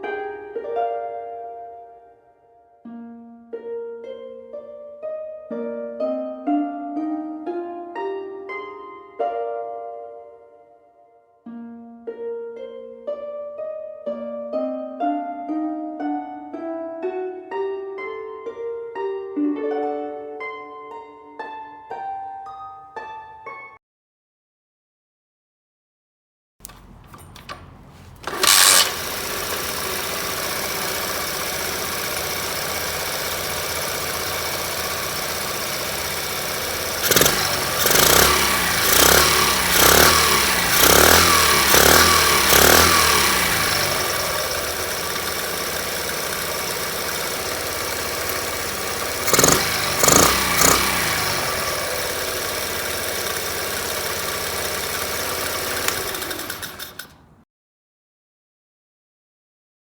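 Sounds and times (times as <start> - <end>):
small motorbike engine idling and revving: 26.6 - 57.4.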